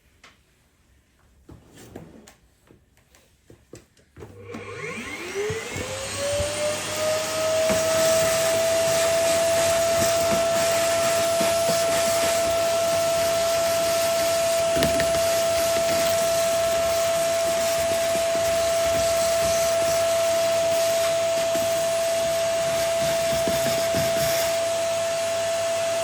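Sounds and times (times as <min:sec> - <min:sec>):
electric motor whining: 0:04.5 - 0:20.2.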